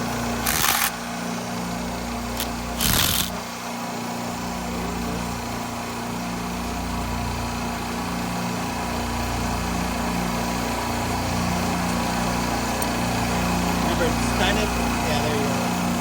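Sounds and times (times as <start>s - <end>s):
machinery humming: 0.0s - 16.0s
sharp clatter: 0.4s - 1.0s, 2.3s - 3.4s.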